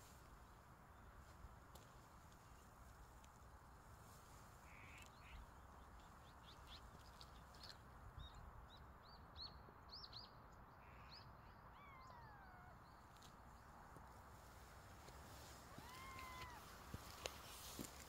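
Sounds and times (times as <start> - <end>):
faint bird chirping: 3.7 - 18.0.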